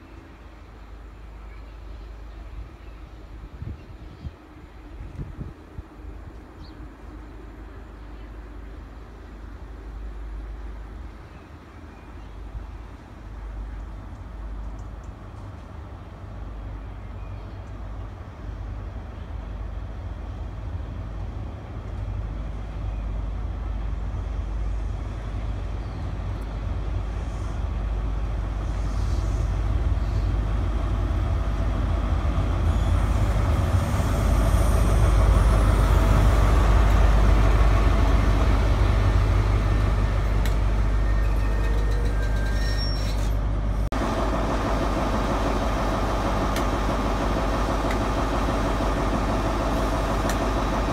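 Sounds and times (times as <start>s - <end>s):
train engine rumble: 0.0s - 50.9s
train wheel noise: 17.6s - 50.9s.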